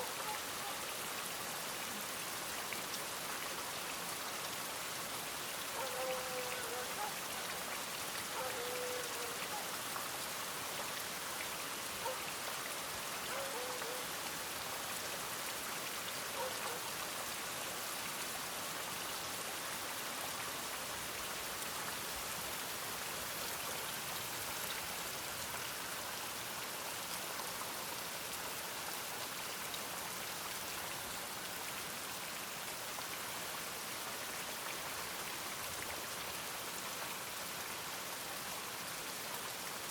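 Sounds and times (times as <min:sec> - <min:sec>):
steady rain hiss: 0:00.0 - 0:39.9
distant dog barking: 0:05.7 - 0:07.5, 0:08.3 - 0:09.7, 0:12.0 - 0:12.3, 0:13.3 - 0:14.1, 0:16.3 - 0:16.9.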